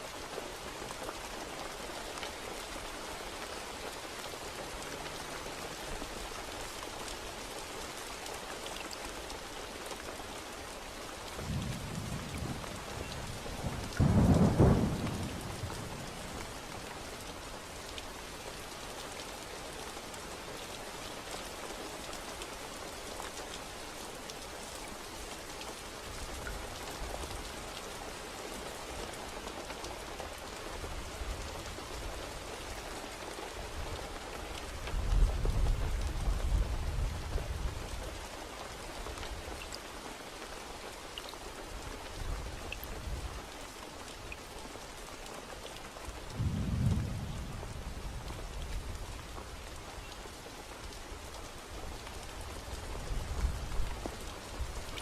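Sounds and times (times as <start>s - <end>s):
steady rain falling: 0.0s - 55.0s
loud thunderclap: 11.4s - 16.0s, 46.3s - 48.0s
thunder rumbling: 11.4s - 16.9s, 46.3s - 49.1s.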